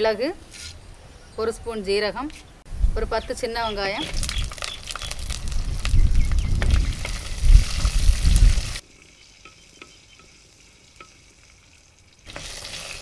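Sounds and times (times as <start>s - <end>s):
shallots sizzling in oil: 4.0s - 13.0s.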